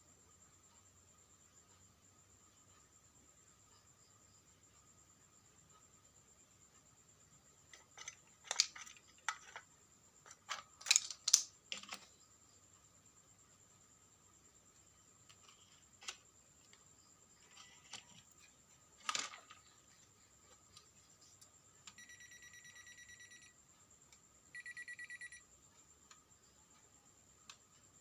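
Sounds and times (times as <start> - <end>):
small objects clicking: 7.7 - 12.1
electronic buzzing beeps: 22.0 - 23.6, 24.5 - 25.4.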